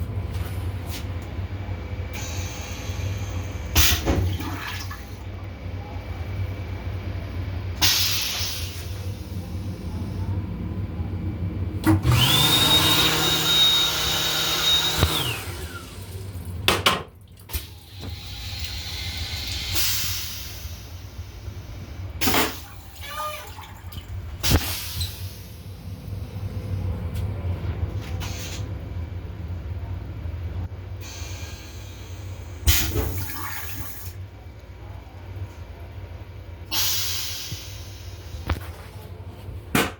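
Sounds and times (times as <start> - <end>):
train toilet flush rushing and whining: 2.1 - 5.4, 6.9 - 16.8, 17.5 - 27.1, 30.9 - 34.2, 36.6 - 38.6.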